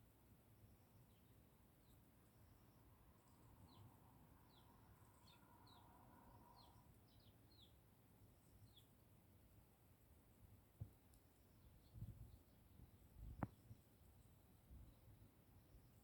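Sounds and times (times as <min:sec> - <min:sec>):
sparrow chirps: 0:02.6 - 0:07.8, 0:08.4 - 0:09.0.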